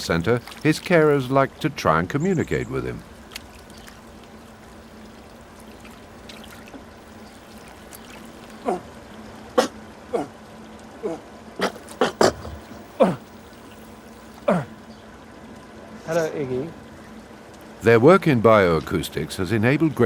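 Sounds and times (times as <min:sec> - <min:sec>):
water trickling: 0:00.0 - 0:20.0
sea lion barking: 0:07.0 - 0:10.4, 0:11.0 - 0:14.8.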